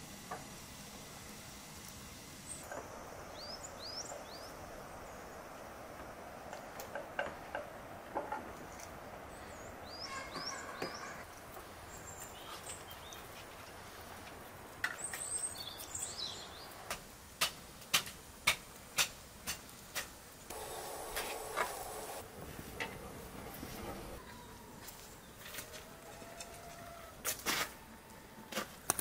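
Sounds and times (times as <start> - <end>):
rural outdoor ambience: 0.0 - 29.0
small birds chirping: 2.4 - 5.8, 8.6 - 16.9, 20.4 - 22.2
rustling noise: 20.0 - 24.2, 24.8 - 27.8.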